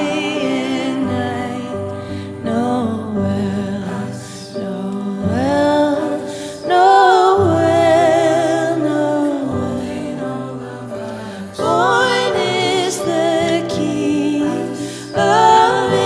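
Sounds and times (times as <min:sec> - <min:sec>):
voices singing with vibrato: 0:00.0 - 0:03.0, 0:03.8 - 0:16.0.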